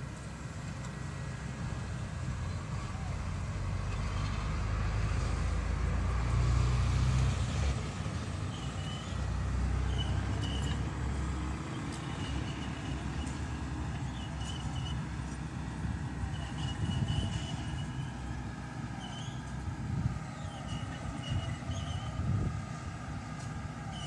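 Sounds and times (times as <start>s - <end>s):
bulldozer diesel engine working: 0.0s - 24.0s
short high squeaks: 9.8s - 10.9s, 16.3s - 18.2s, 18.9s - 19.6s, 20.4s - 22.2s.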